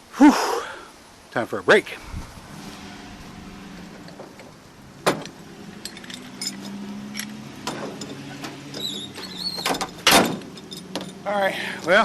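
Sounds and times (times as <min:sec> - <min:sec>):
steady low hum: 0:01.8 - 0:06.4
light clinks and rattles: 0:05.1 - 0:11.9.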